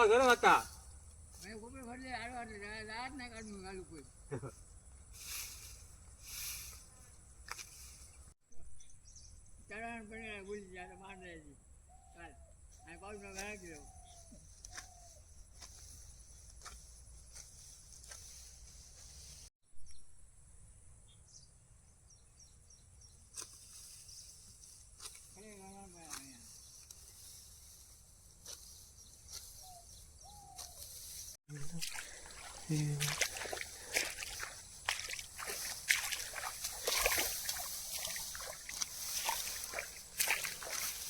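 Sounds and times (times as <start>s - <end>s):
crickets droning: 31.0s - 41.0s
water splashing and sloshing: 31.5s - 41.0s.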